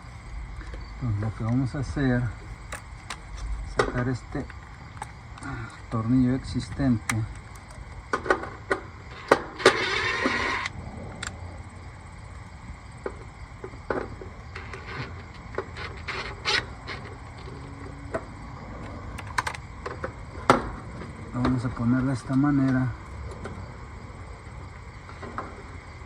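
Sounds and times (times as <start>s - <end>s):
small clicks and knocks: 2.7s - 5.8s, 6.6s - 11.4s, 13.0s - 23.6s.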